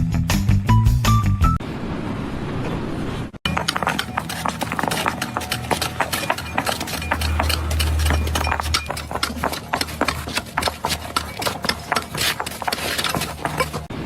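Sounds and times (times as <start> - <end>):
rapid clicking and knocking: 3.5 - 13.9.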